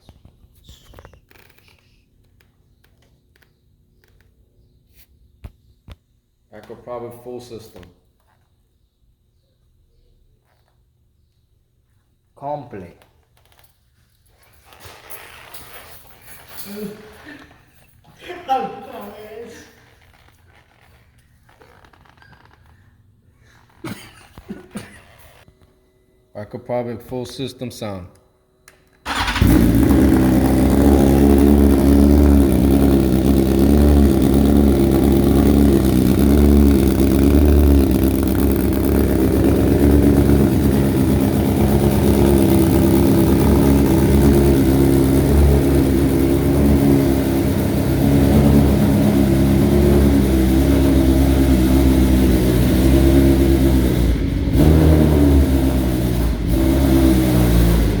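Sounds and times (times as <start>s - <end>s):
motorcycle engine running: 29.1s - 58.0s.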